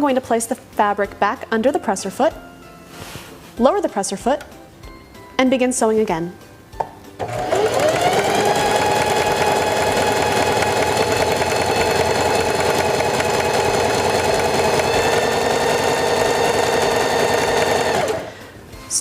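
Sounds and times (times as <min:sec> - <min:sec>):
sewing machine running: 0:07.2 - 0:18.4.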